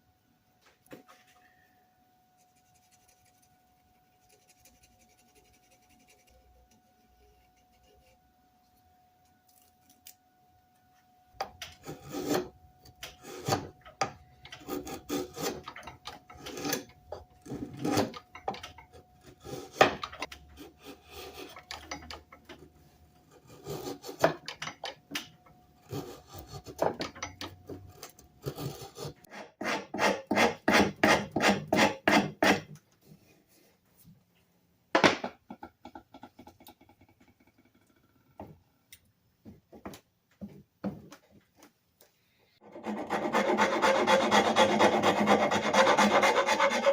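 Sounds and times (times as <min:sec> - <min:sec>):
rasp scraping wood: 0:11.8 - 0:12.5, 0:13.1 - 0:18.3, 0:19.2 - 0:22.2, 0:23.3 - 0:24.4, 0:25.8 - 0:27.0, 0:28.0 - 0:32.7, 0:42.6 - 0:46.9.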